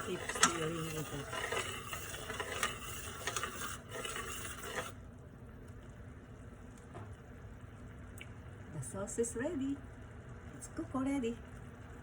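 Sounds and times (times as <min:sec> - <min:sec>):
utensil stirring sauce in pan: 0:00.0 - 0:05.0.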